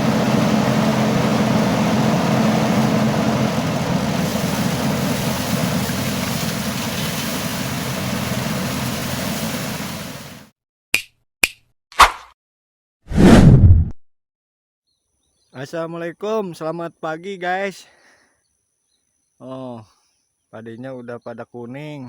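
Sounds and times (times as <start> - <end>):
small engine running: 0.0 - 10.5.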